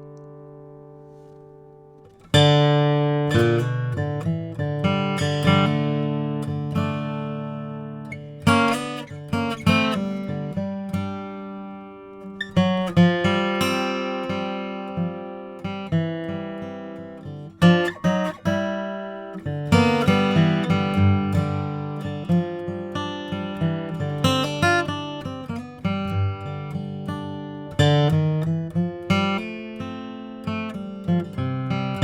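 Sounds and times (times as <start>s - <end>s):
acoustic guitar playing: 0.0s - 32.0s.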